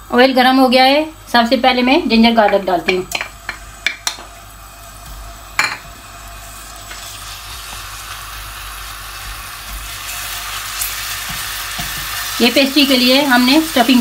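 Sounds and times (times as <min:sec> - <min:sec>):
paste sizzling in hot oil: 0:04.4 - 0:14.0.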